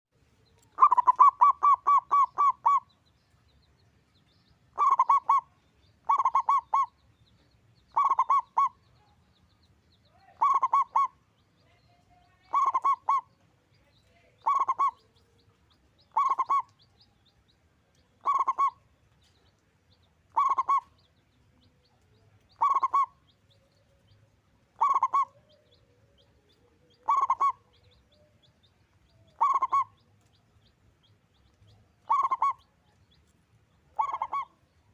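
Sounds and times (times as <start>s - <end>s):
dove cooing: 0.7s - 2.9s, 4.8s - 6.9s, 7.9s - 8.8s, 10.4s - 11.2s, 12.5s - 13.3s, 14.4s - 15.0s, 16.1s - 16.7s, 18.2s - 18.8s, 20.3s - 20.9s, 22.6s - 23.2s, 24.8s - 25.8s, 26.8s - 27.7s, 29.2s - 30.0s, 32.1s - 32.7s, 33.9s - 34.6s.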